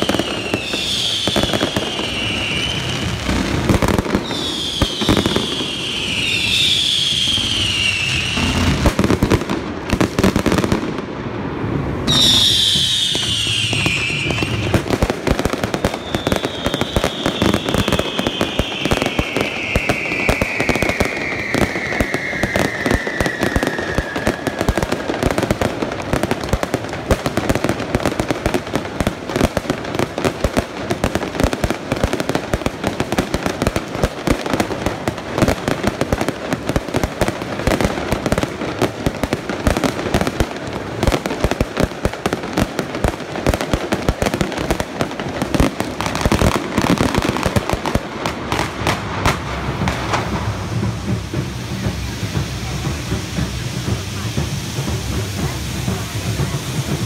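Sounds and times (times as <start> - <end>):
falling firework whistle: 0.0 - 9.3, 12.0 - 39.1
fireworks bangs and crackling: 0.0 - 57.0.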